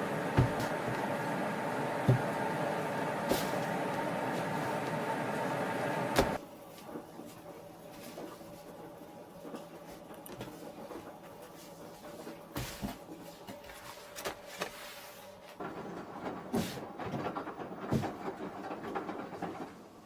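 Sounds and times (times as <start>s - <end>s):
machine hum: 0.0s - 6.4s.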